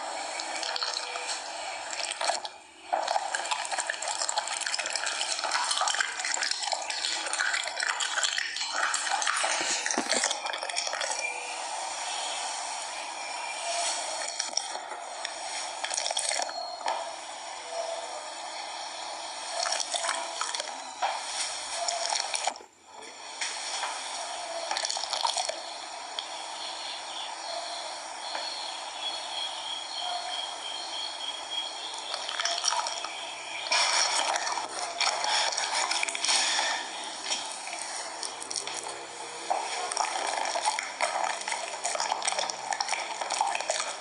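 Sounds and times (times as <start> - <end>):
water running and splashing: 0.3 - 11.2, 32.1 - 44.0.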